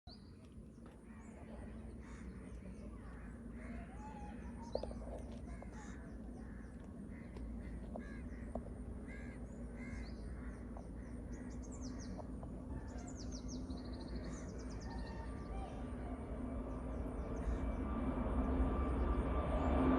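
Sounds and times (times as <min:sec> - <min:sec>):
small birds chirping: 0:00.1 - 0:17.7
steady low hum: 0:00.1 - 0:19.9
crows cawing: 0:05.4 - 0:12.1.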